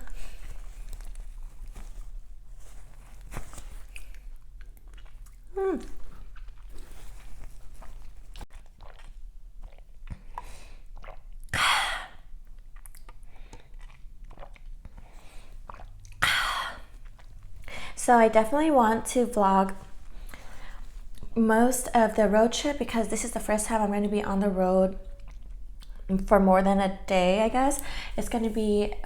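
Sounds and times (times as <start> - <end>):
chewing flaky pastry: 0.0 - 11.5, 12.3 - 17.9, 24.8 - 26.2
person humming: 5.5 - 6.0.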